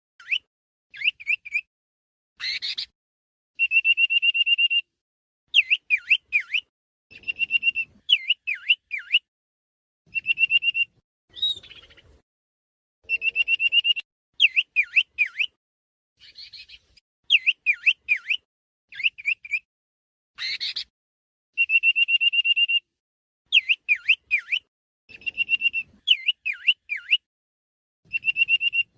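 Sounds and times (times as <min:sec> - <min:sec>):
bird whistling phrase: 0:00.2 - 0:01.7, 0:03.6 - 0:04.9, 0:05.6 - 0:09.3, 0:10.1 - 0:12.0, 0:13.1 - 0:15.6, 0:17.3 - 0:19.7, 0:21.6 - 0:22.9, 0:23.5 - 0:27.3, 0:28.1 - 0:28.9.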